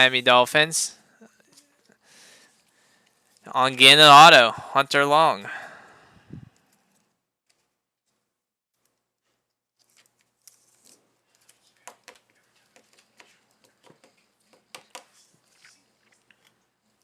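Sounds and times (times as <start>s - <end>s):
trading cards being flipped: 9.8s - 14.2s.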